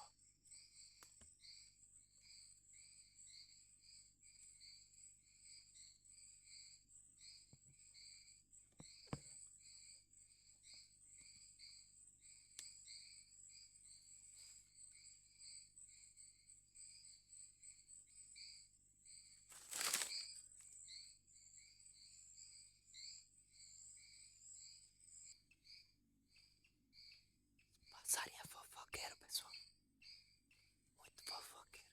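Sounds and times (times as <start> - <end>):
insect whine: 9.0 - 24.8
loud rustle: 19.5 - 20.2.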